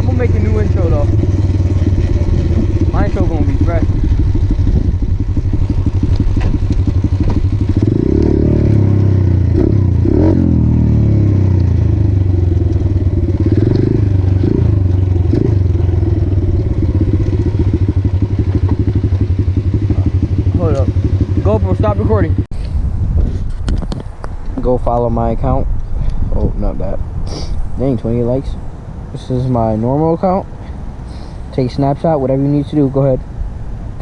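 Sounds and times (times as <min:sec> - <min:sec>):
motorcycle engine revving: 0:00.0 - 0:22.5.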